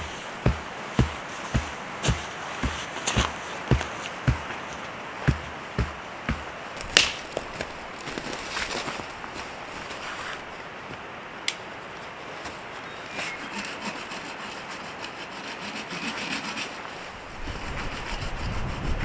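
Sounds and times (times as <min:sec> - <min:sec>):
rubbing and scraping: 0:00.0 - 0:10.5, 0:13.1 - 0:19.0
wind buffeting microphone: 0:17.1 - 0:19.0.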